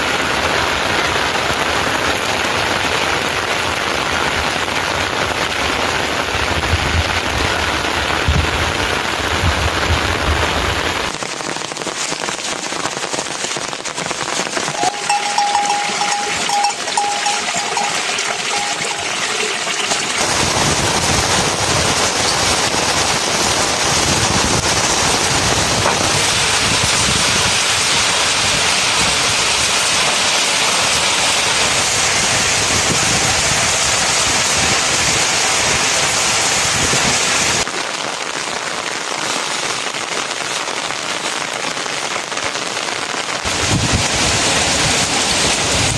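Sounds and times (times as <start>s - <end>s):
steady rain hiss: 0.0s - 17.8s, 20.1s - 45.9s
thin steady ringing note: 14.8s - 20.2s.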